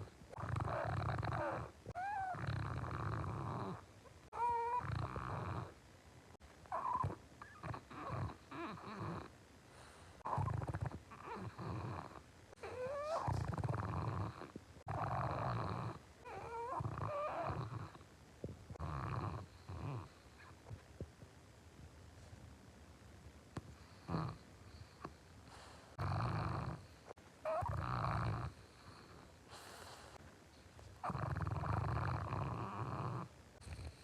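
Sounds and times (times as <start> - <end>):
dog snoring: 0.0 - 5.8, 6.7 - 18.1, 18.7 - 20.6, 23.6 - 30.2, 31.0 - 34.0
squeaky whistles in snores: 0.4 - 3.8, 4.4 - 5.7, 6.7 - 9.3, 10.3 - 18.0, 27.5 - 29.0.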